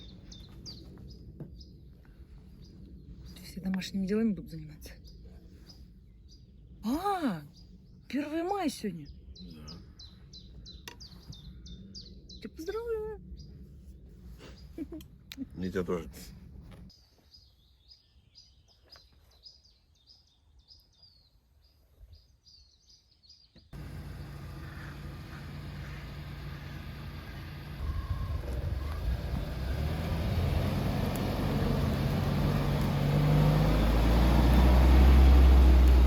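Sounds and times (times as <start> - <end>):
small birds chirping: 0.0 - 36.0
vehicle engine and road noise: 23.8 - 36.0.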